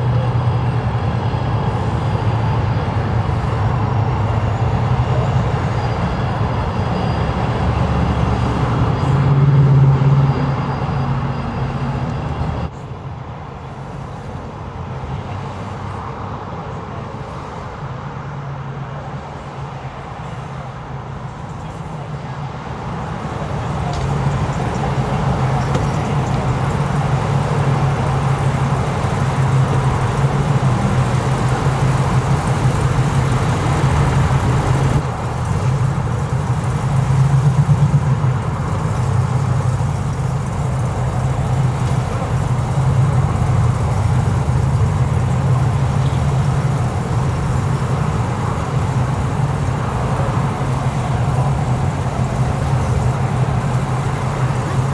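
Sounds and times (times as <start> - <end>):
car engine running: 23.7 - 54.9.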